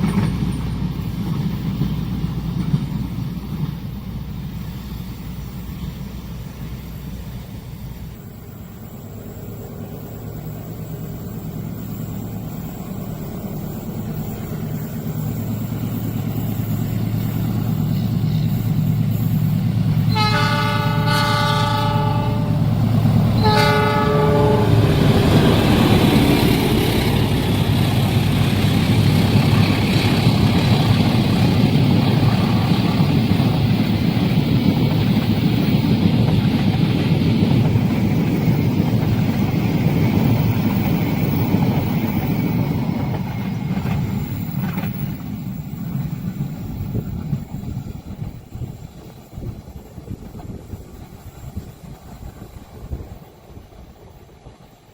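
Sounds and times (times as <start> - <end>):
train engine hum: 0.0 - 54.9
train wheels rumbling on rails: 0.0 - 54.9
train horn: 20.1 - 26.0.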